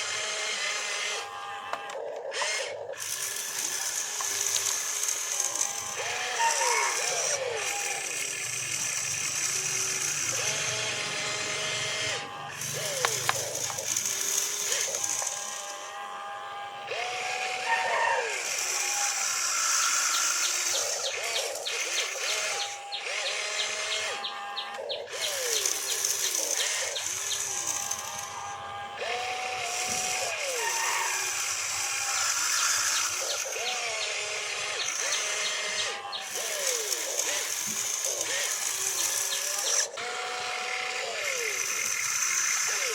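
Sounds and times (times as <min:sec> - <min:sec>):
toy electric motors whining: 0:00.0 - 0:42.9
quick gear ticks: 0:12.6 - 0:15.3.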